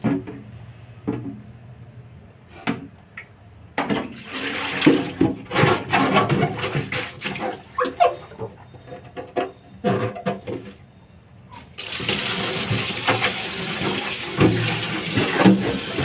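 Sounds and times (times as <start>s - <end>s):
tap water running and splashing: 3.9s - 8.3s, 11.7s - 16.0s
knocks and clatter of handling: 4.8s - 10.9s.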